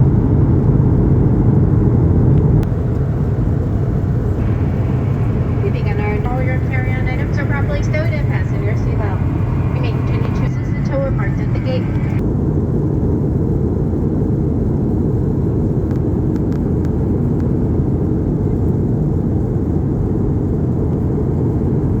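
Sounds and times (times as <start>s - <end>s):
vehicle cabin rumble: 0.0s - 12.2s.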